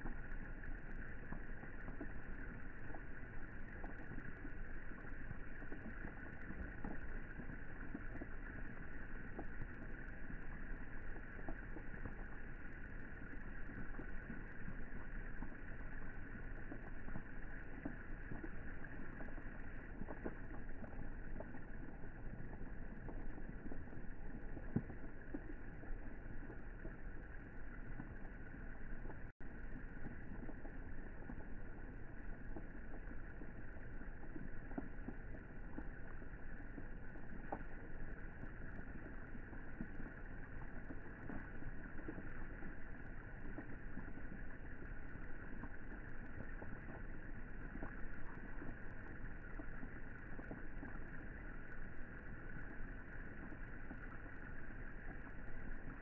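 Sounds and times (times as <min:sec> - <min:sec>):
rain falling on pool water: 0:00.0 - 0:56.0
raindrop plinks: 0:00.0 - 0:56.0.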